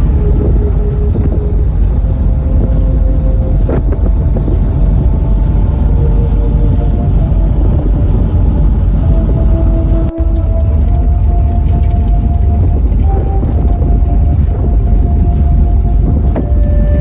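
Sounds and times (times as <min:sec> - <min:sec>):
ferry engine rumble: 0:00.0 - 0:17.0
wind buffeting microphone: 0:00.0 - 0:17.0.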